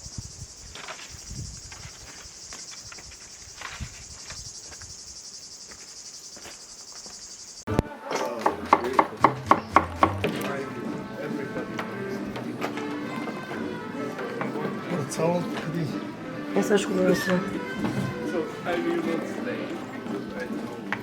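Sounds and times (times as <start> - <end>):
insects chirring: 0.0 - 7.7.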